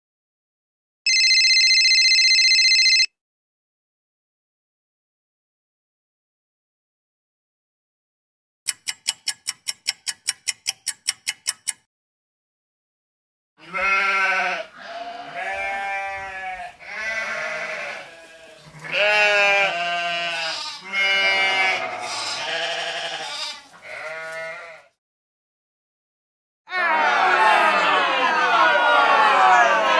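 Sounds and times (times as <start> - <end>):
telephone ringing: 1.1 - 3.1
sheep bleating: 13.6 - 25.0.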